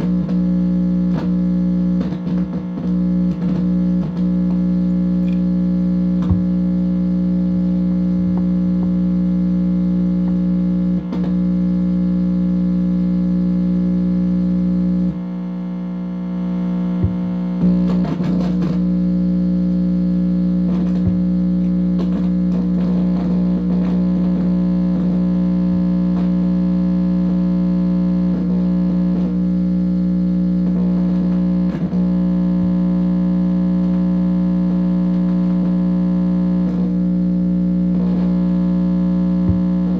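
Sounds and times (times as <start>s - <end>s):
distorted amplifier buzz: 0.0s - 39.9s
clicks: 5.2s - 5.6s.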